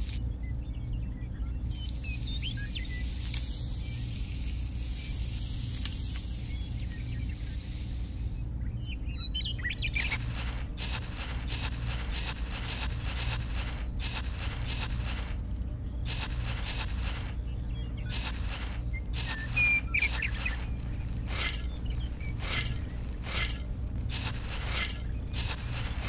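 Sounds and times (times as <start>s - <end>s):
low steady hum: 0.0s - 26.0s
bird chirps: 0.2s - 26.0s
metal scraper scraping sandy soil: 10.0s - 15.5s, 16.1s - 17.5s, 18.1s - 26.0s.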